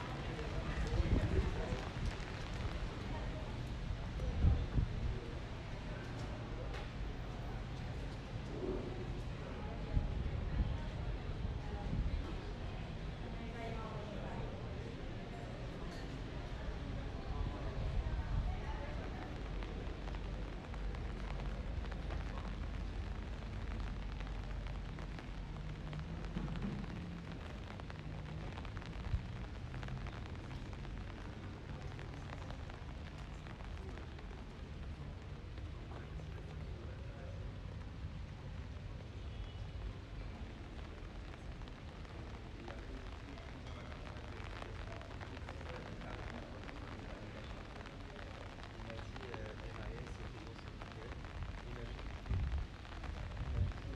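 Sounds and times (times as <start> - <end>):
rain falling: 0.0 - 53.9
steady low rumble: 17.4 - 39.0, 40.0 - 53.9.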